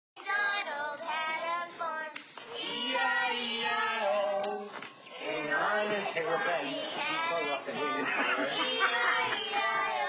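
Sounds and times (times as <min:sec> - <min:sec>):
young voices singing: 0:00.2 - 0:10.0.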